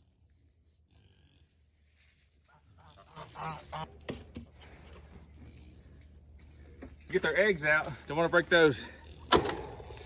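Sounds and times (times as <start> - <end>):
geese honking: 2.4 - 4.2.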